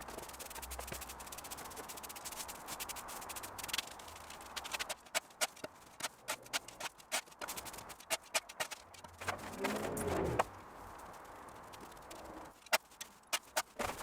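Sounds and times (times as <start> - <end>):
garden tool scraping: 4.4 - 10.5.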